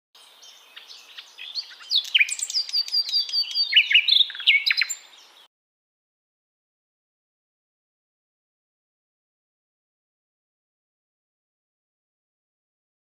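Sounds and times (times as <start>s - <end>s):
songbird whistles and clicks: 1.7s - 5.0s.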